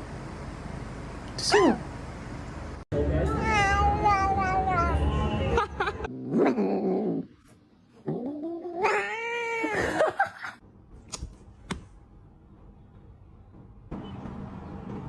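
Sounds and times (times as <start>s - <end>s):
cat yowling: 3.4s - 5.0s, 8.2s - 10.0s.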